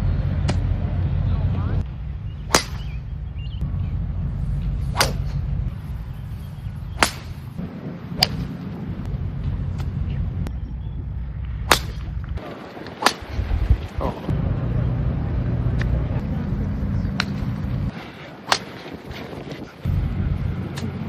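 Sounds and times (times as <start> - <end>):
steady low rumble: 0.0 - 21.0
golf club striking ball: 2.4 - 3.0, 4.6 - 6.2, 6.9 - 10.6, 11.6 - 13.5, 18.5 - 19.0.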